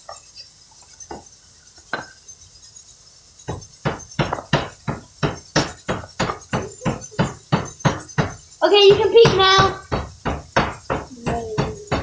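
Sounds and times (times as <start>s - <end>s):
quick regular knocks: 3.5s - 12.0s.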